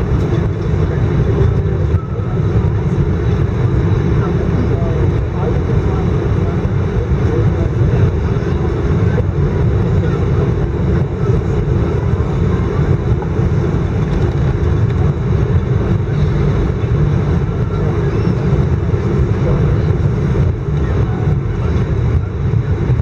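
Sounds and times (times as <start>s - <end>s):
airplane cabin low rumble: 0.0s - 23.0s
jet engines idling: 0.0s - 23.0s.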